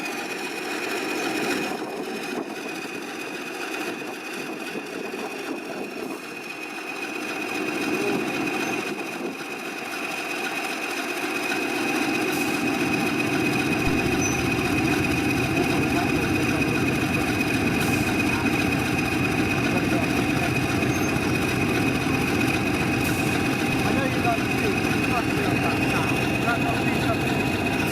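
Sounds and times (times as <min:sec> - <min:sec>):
diesel locomotive engine drone: 0:00.0 - 0:27.9
high-pitched turbocharger whine: 0:10.1 - 0:27.9.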